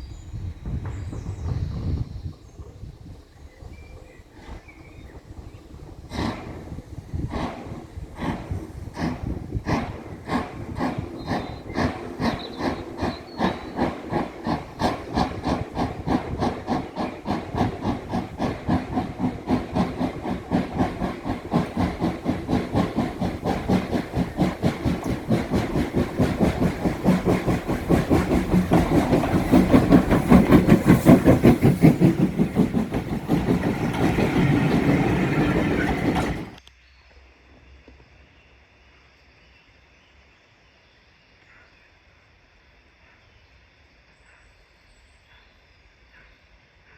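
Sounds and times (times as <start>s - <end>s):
steam locomotive exhaust beats: 0.0s - 36.6s
steam hissing: 0.1s - 36.6s.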